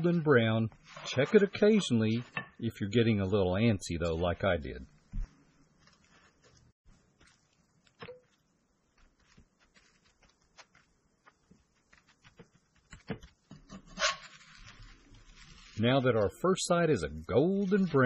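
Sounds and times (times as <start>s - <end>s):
spatula scraping pan: 0.7s - 2.6s.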